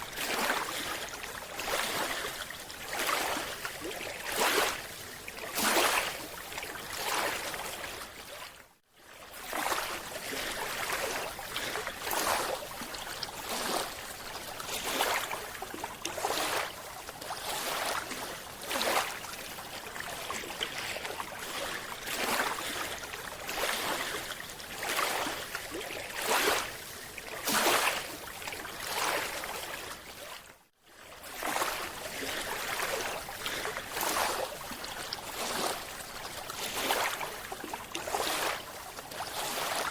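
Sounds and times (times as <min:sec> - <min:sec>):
rushing water in surges: 0:00.0 - 0:39.9.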